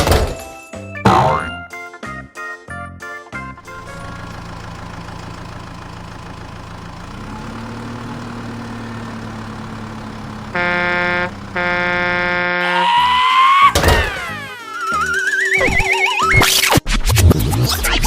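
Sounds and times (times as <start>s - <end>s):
cartoon engine running: 1.1s - 1.6s, 8.6s - 16.7s
long horn honks: 9.8s - 13.2s.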